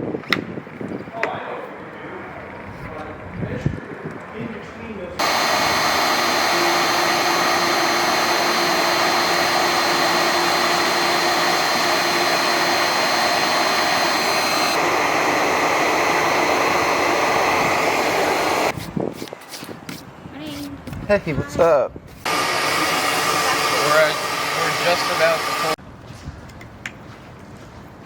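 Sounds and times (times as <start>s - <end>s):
router cutting metal: 5.2s - 18.8s, 22.3s - 25.8s
vacuum rushing noise: 5.2s - 18.8s, 22.2s - 25.8s.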